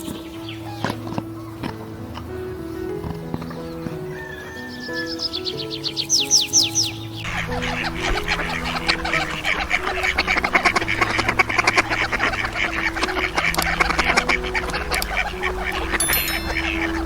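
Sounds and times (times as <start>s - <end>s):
soft background music: 0.0s - 17.0s
ducks quacking: 7.2s - 17.0s.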